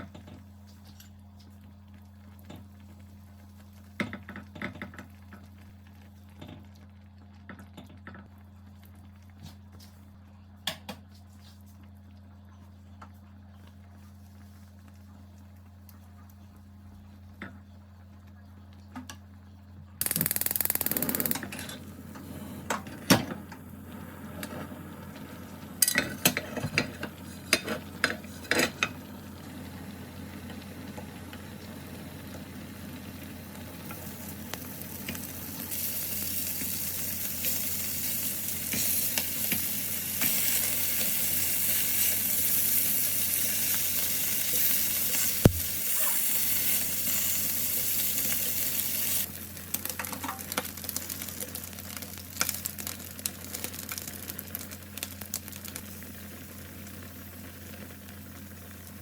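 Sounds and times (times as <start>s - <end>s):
food sizzling in a frying pan: 20.0s - 59.0s.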